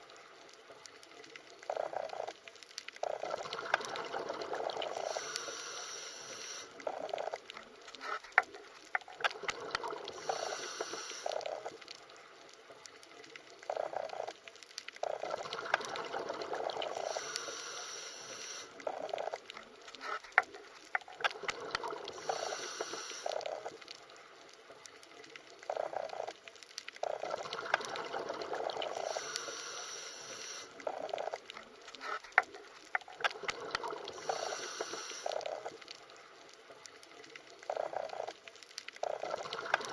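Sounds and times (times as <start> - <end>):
underwater moving water: 0.0 - 39.9.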